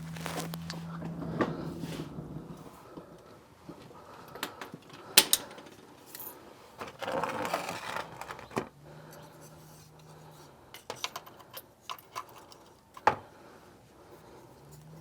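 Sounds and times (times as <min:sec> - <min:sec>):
scraping rustle: 0:00.0 - 0:02.9, 0:06.6 - 0:10.5.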